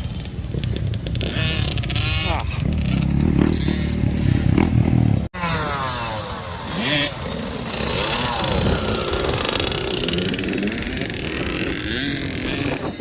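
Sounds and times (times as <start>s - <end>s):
minibike engine running hard: 0.0s - 13.0s.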